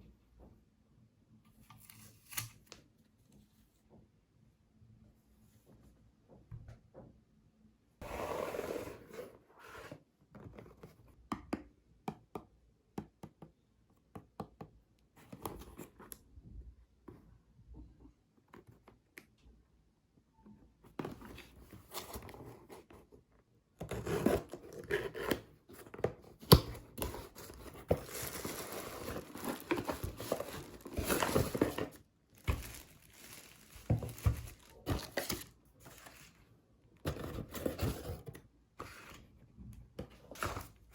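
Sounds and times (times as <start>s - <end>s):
packaging tearing and crinkling: 28.0s - 36.1s.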